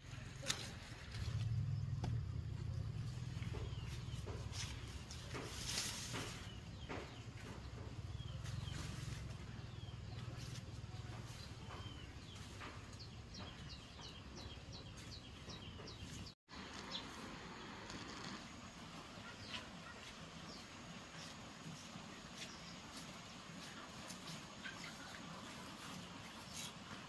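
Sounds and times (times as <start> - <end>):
steady low hum: 0.0 - 14.0
birds chirping and calling: 0.4 - 17.0
rustling: 3.0 - 7.3.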